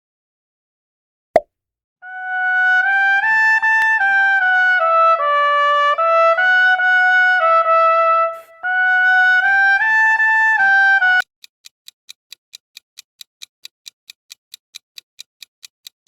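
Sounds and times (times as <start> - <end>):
trumpet playing slow melody: 2.0 - 11.2.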